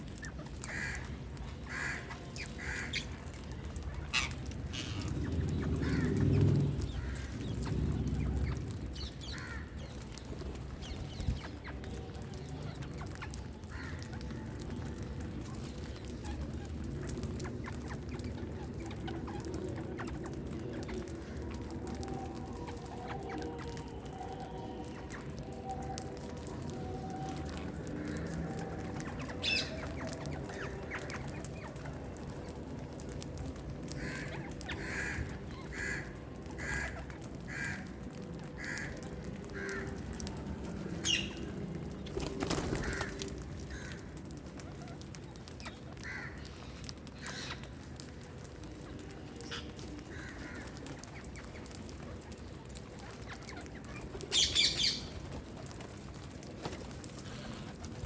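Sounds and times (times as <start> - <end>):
parakeets calling: 40.9 - 41.5, 53.0 - 55.3.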